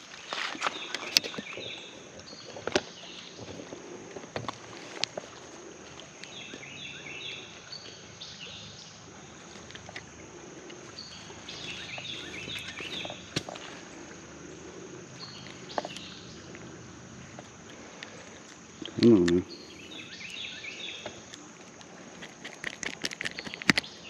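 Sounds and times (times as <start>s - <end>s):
outdoor background hiss: 0.0s - 24.0s
sharp clicks: 22.2s - 24.0s.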